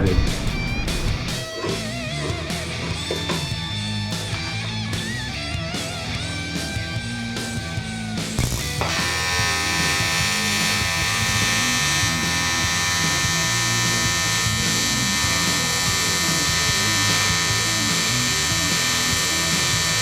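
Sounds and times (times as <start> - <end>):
metalworking tool buzzing: 8.4 - 20.0.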